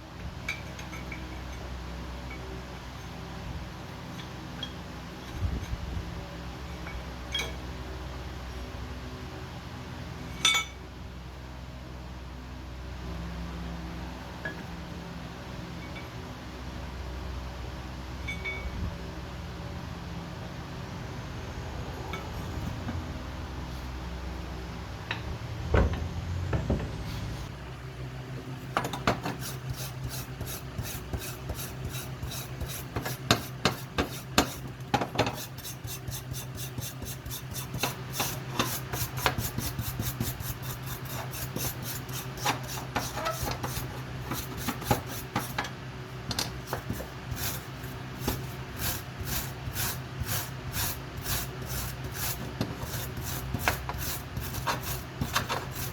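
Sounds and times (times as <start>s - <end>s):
metal vice being filed: 28.9s - 45.7s, 46.4s - 55.9s.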